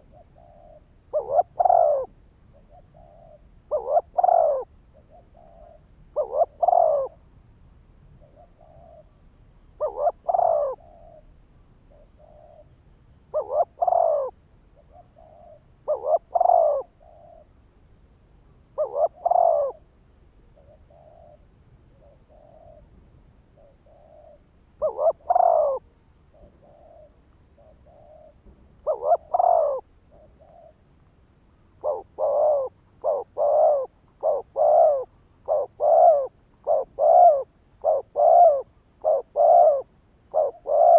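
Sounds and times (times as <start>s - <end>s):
dove cooing: 0.0s - 7.2s, 8.2s - 9.2s, 9.8s - 17.6s, 18.7s - 23.0s, 23.6s - 30.9s, 31.5s - 40.9s.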